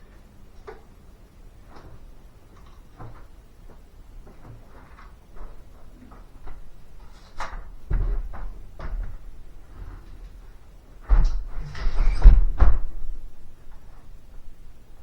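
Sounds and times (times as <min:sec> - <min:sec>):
heavy thumps: 0:11.1 - 0:13.3.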